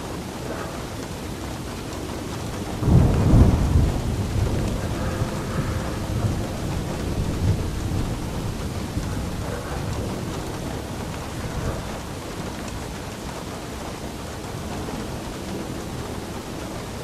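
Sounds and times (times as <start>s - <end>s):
steady rain: 0.0s - 17.0s
thunder rumbling: 0.0s - 17.0s.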